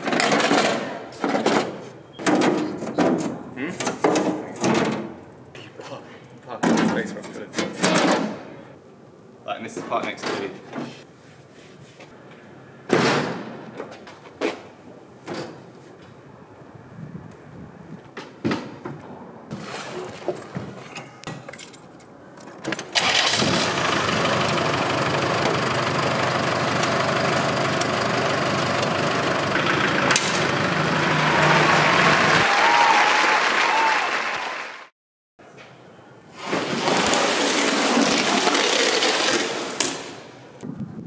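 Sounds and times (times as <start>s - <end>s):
knocks and clatters of work: 0.0s - 5.7s, 6.5s - 8.6s, 18.2s - 23.8s, 28.6s - 31.1s
engine starting and running: 22.7s - 32.5s.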